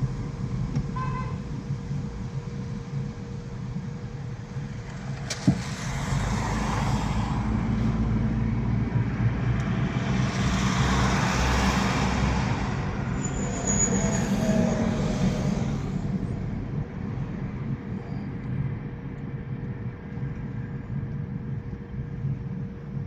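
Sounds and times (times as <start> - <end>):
road hiss: 0.0 - 8.8
car engine and tyre rumble: 0.0 - 23.0.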